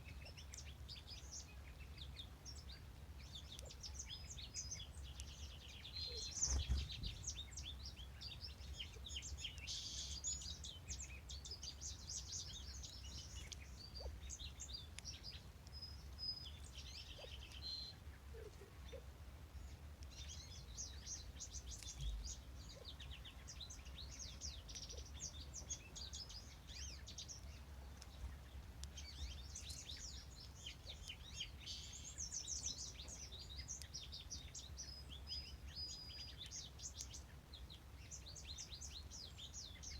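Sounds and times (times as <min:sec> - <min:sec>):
songbirds chirping: 0:00.0 - 0:39.9
steady low rumble: 0:06.6 - 0:07.6.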